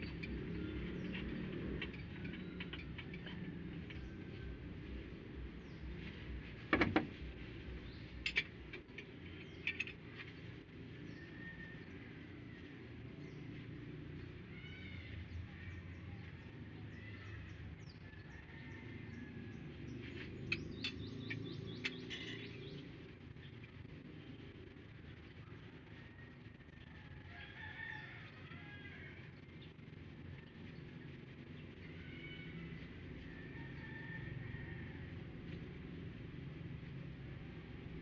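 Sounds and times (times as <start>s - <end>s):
birds chirping: 0.0s - 25.8s.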